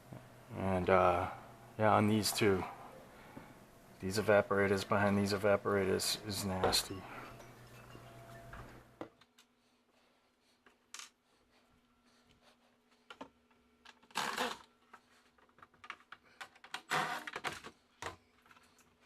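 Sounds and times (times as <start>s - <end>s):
faint steady hum: 0.0s - 19.0s
plastic parts clicking and knocking: 13.1s - 18.9s.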